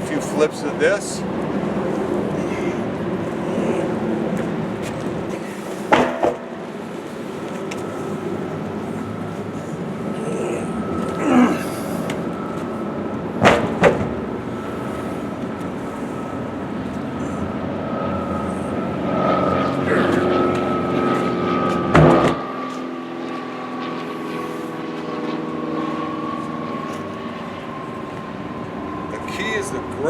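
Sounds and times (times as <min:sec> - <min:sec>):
steady background hum: 0:00.0 - 0:30.0
truck tire landing heavily: 0:05.9 - 0:06.6.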